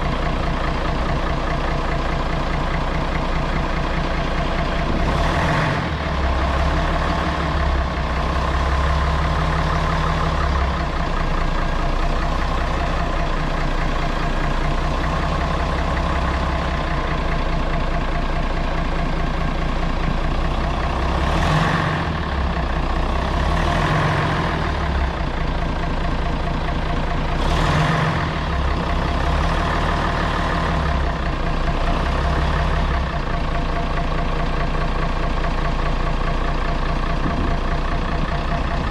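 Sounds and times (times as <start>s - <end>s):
diesel bus engine rumbling: 0.0s - 38.9s.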